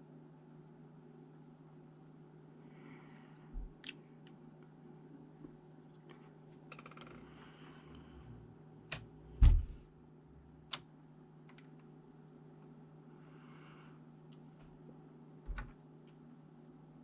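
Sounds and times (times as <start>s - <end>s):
steady low hum: 0.0s - 17.0s
rattle of small ticks: 5.9s - 9.1s, 10.7s - 12.8s
low thump: 9.4s - 9.8s.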